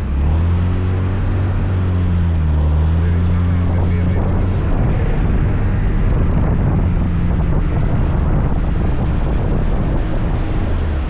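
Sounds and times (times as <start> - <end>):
wind rushing over microphone: 3.1 - 11.0.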